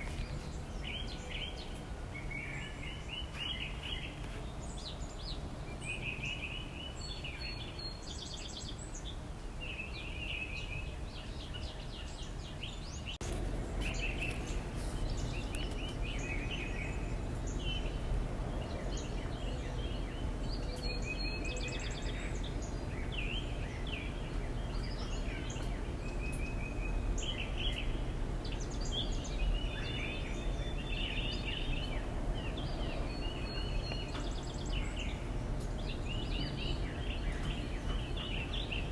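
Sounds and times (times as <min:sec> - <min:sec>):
small birds chirping: 0:00.0 - 0:38.9
low background rumble: 0:10.8 - 0:38.9.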